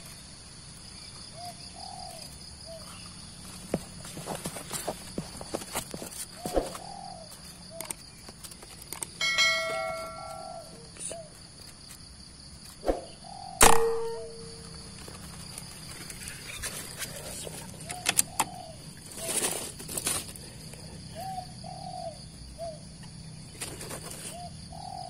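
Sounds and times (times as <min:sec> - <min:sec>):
doves cooing: 0:01.2 - 0:11.5, 0:12.9 - 0:25.0
metallic ding: 0:09.2 - 0:10.6, 0:13.6 - 0:14.6
brief ringing tone: 0:09.2 - 0:10.7
sharp crack: 0:12.8 - 0:14.7.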